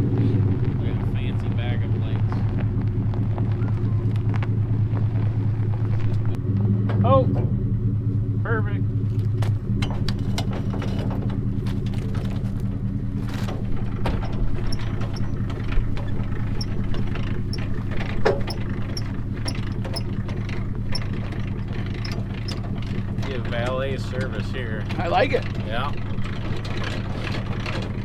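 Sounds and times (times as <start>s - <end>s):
vehicle engine idling: 0.0s - 28.0s
sharp clicks and knocks: 9.2s - 28.0s.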